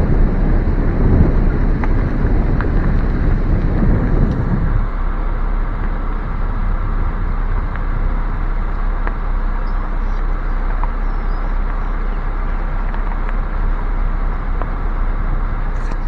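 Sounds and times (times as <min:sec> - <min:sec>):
car driving rumble inside cabin: 0:00.0 - 0:16.0
faint ticks: 0:08.7 - 0:16.0.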